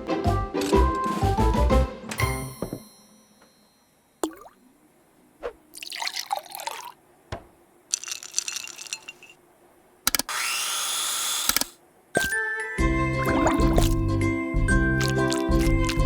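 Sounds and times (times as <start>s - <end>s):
music: 0.0s - 2.8s, 12.2s - 16.0s
splashy liquid sounds: 5.8s - 7.0s, 13.2s - 14.0s, 15.0s - 16.0s
liquid pouring rising tone: 13.2s - 14.0s, 15.0s - 16.0s.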